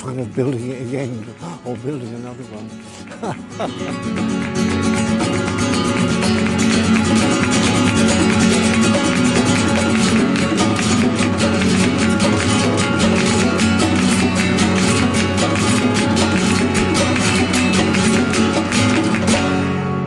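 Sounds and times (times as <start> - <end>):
flamenco acoustic guitar: 0.0 - 20.0.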